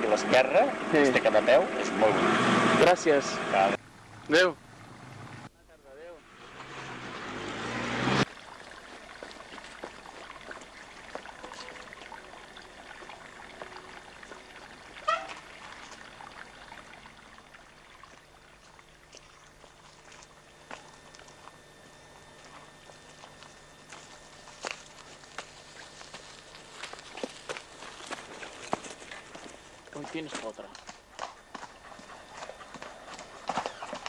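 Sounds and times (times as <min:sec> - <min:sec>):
trickle of running water: 0:08.2 - 0:30.8
short pitched call: 0:15.0 - 0:15.4.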